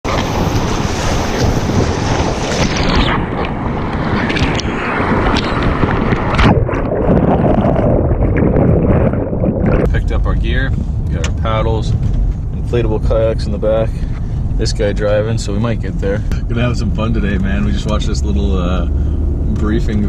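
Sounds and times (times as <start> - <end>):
rushing whitewater: 0.0 - 7.0
wind buffeting microphone: 0.0 - 20.0.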